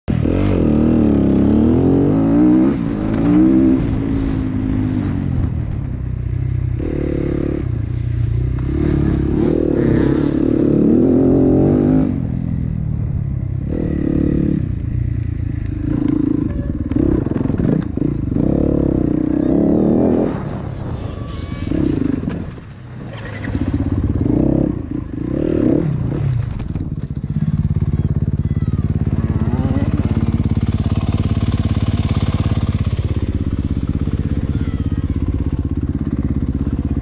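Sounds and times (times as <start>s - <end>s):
motorcycle engine revving: 0.1s - 37.0s.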